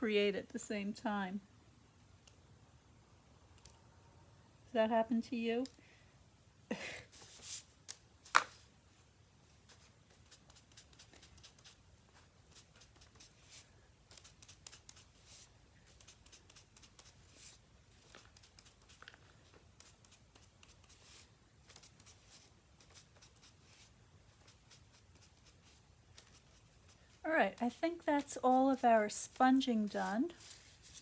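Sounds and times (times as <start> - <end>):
sponge dabbing ink on paper: 9.7 - 31.0.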